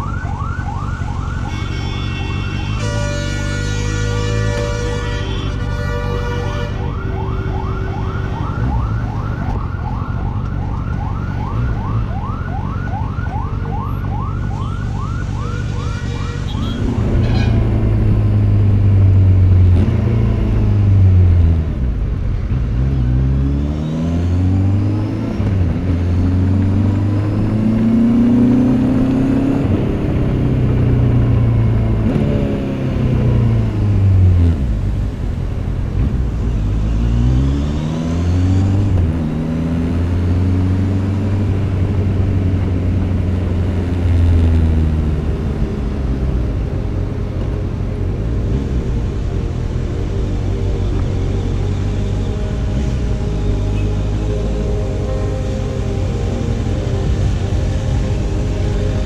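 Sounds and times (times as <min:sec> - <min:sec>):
rapid yelping siren: 0:06.8 - 0:16.7
motorcycle engine revving: 0:16.1 - 0:59.0.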